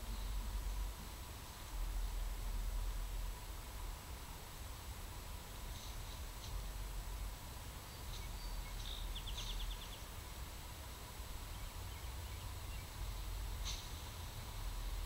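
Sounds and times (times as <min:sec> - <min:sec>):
steady low rumble and hiss: 0:00.0 - 0:15.0
birds chirping and trilling: 0:07.8 - 0:10.1, 0:11.4 - 0:14.0.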